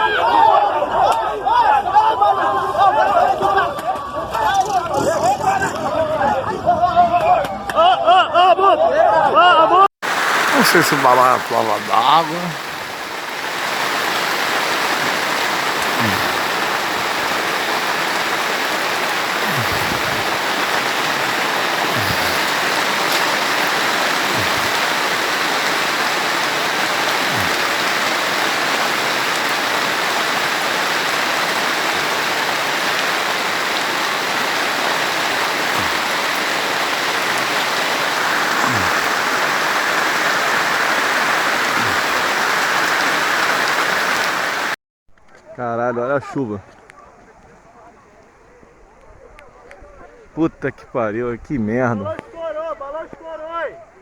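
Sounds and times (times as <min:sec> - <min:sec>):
heavy rain falling: 0:10.0 - 0:44.8.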